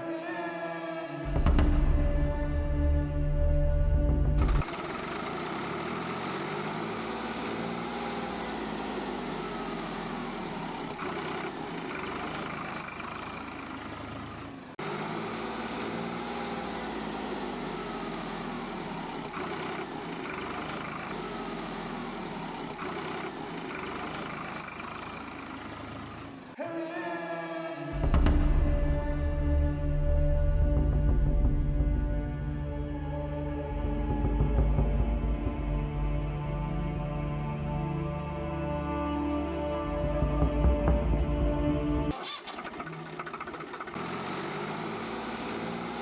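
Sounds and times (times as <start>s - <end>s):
engine idling: 1.2s - 26.6s, 27.9s - 46.0s.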